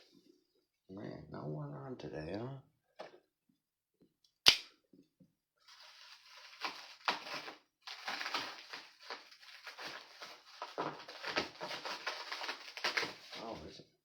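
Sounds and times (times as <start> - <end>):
packaging crinkling and rustling: 5.6 - 13.8.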